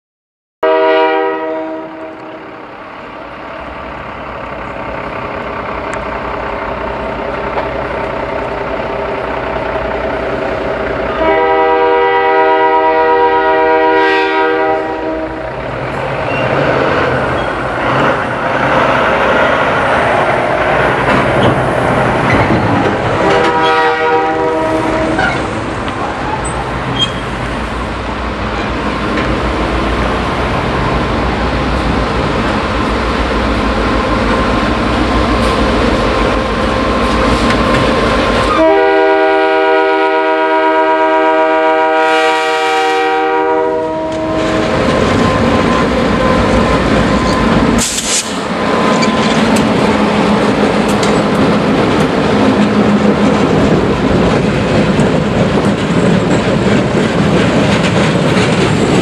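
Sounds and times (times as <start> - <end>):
locomotive air horn: 0.6 - 2.6, 11.1 - 15.6, 23.2 - 25.6, 38.4 - 44.9
train engine and rail noise: 0.6 - 59.0.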